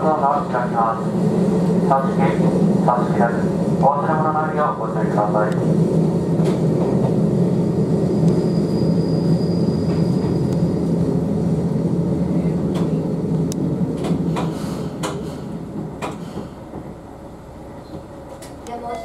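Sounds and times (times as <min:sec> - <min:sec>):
railcar rumble: 0:00.0 - 0:19.0.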